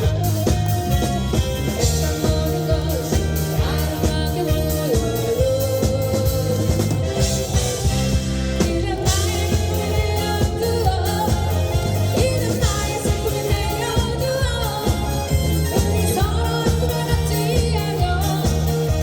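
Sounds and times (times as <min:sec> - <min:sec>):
live rock band playing: 0:00.0 - 0:19.0
person singing: 0:01.8 - 0:07.2.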